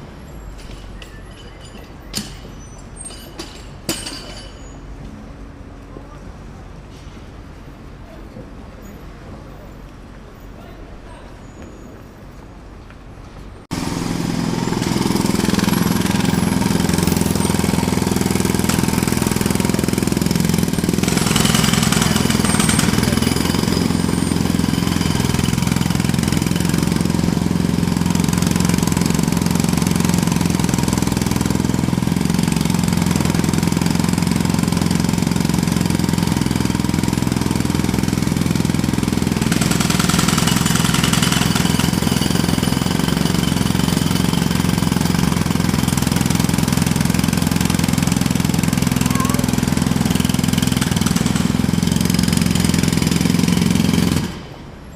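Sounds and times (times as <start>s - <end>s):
jackhammer hammering: 0.6s - 4.7s, 13.7s - 54.9s.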